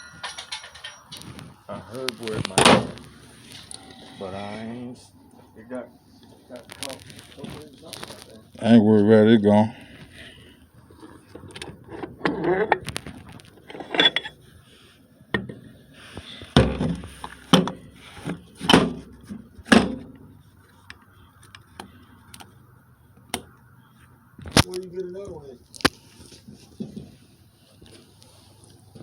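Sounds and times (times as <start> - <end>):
metal parts and tools clanking: 0.0 - 4.3, 11.5 - 14.4.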